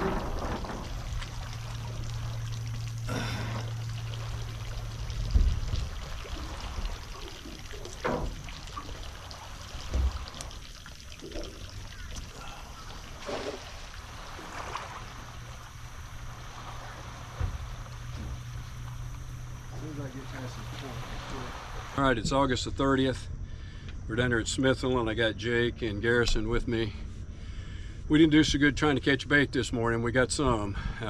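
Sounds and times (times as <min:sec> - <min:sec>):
water pouring and trickling: 0:00.0 - 0:22.0
low rumble: 0:00.0 - 0:24.8.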